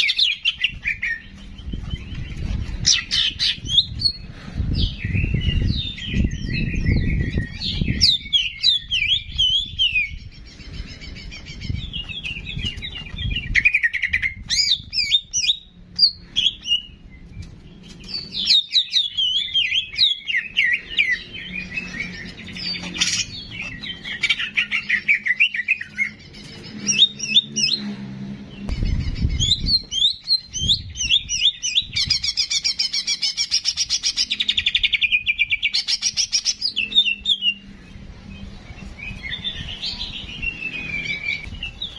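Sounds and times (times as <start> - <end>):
songbird chirping and whistling: 4.8 - 27.8, 28.6 - 41.9
low rumbling: 26.0 - 32.4.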